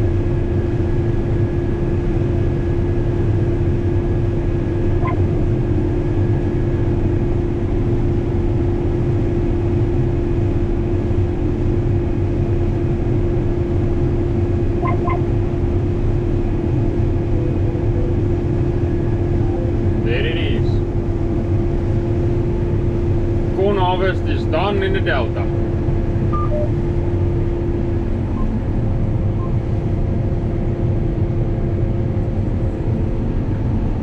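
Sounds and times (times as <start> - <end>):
combine harvester rumbling: 0.0 - 34.0
double beep: 5.0 - 5.2, 14.8 - 15.3, 26.4 - 26.7
brief higher-pitched sound: 14.8 - 15.3.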